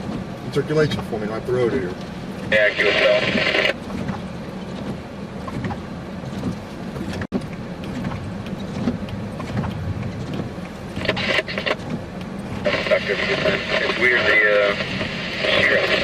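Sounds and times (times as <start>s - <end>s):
road and engine rumble in car: 0.0s - 16.0s.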